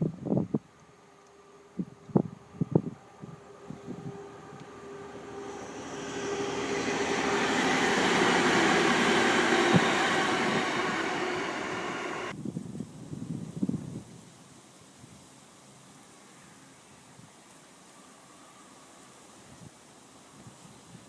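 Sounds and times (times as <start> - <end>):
diesel train passing: 2.4 - 12.3.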